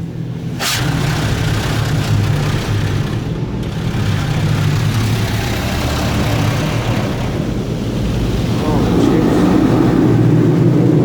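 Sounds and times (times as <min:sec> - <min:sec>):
low rumble: 0:00.0 - 0:11.0
water spray hitting car body: 0:00.6 - 0:07.8.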